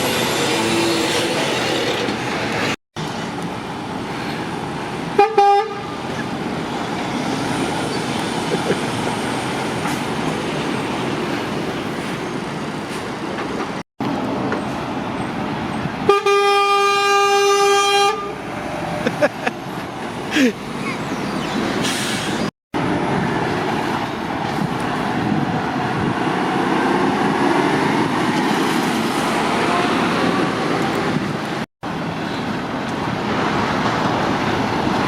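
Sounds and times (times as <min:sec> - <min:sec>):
traffic noise: 0:00.0 - 0:35.0
lorry horn: 0:16.1 - 0:18.4.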